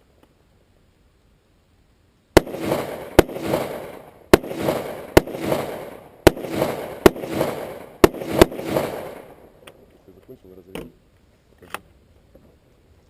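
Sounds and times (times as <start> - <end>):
rifle shots with echo: 2.4 - 9.6.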